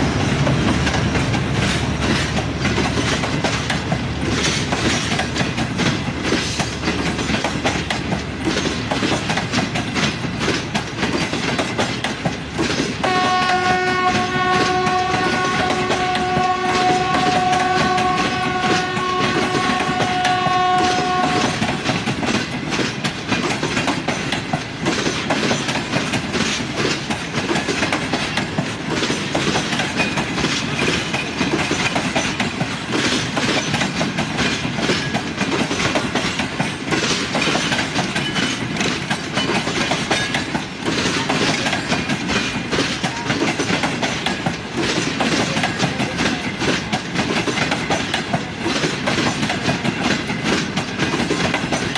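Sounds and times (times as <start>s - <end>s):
train wheels clacking over rail joints: 0.0s - 51.9s
locomotive air horn: 13.0s - 21.8s.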